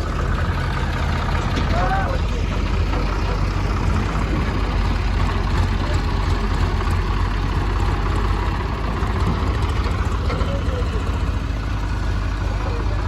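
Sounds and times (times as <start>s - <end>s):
heavy diesel engine rumbling: 0.0s - 13.0s.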